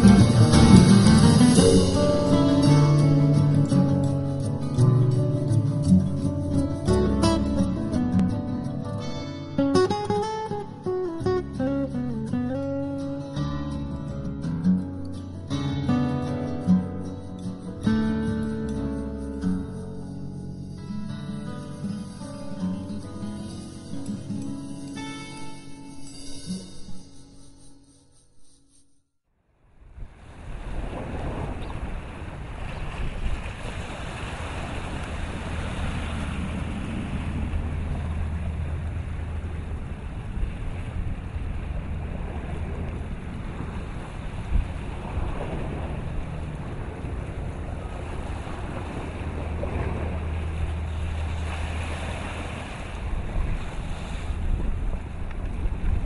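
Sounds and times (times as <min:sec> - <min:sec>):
waves washing: 0:00.0 - 0:27.9, 0:29.7 - 0:56.0
wind buffeting microphone: 0:29.8 - 0:56.0.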